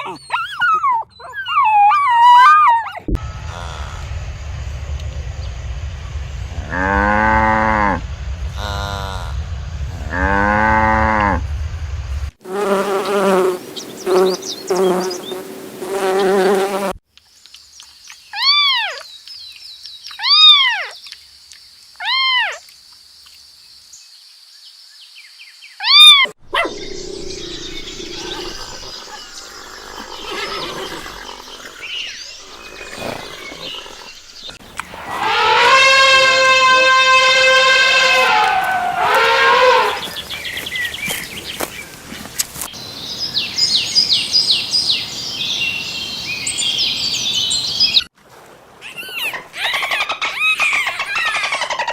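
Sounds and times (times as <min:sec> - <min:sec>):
high arching animal cries: 0:25.8 - 0:40.3
animal calls: 0:25.8 - 0:41.7.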